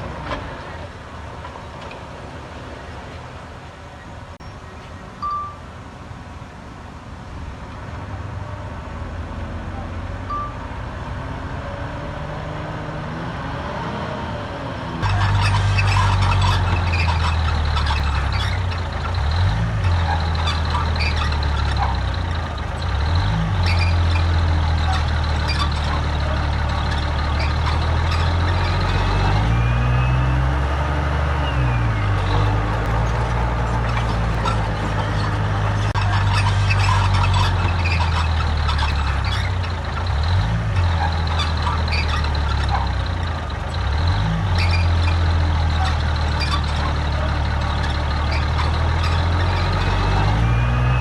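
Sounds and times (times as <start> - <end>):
heavy diesel engine running: 15.0 - 51.0.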